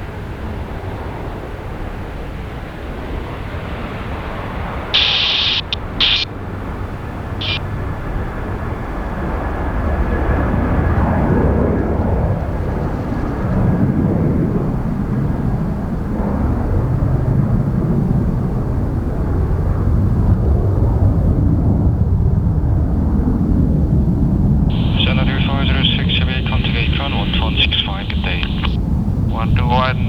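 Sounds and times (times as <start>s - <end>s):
jet engines rumbling: 0.9s - 9.5s, 24.7s - 30.0s.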